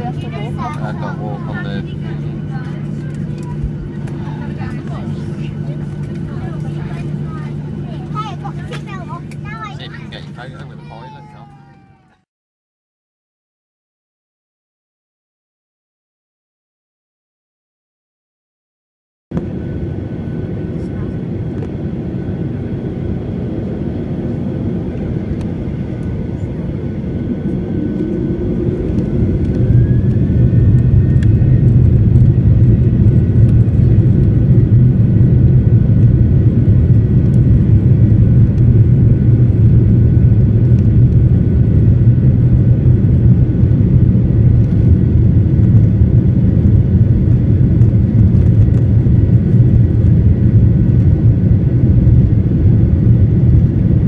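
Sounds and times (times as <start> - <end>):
airplane cabin engine rumble: 0.0 - 12.2, 19.4 - 54.0.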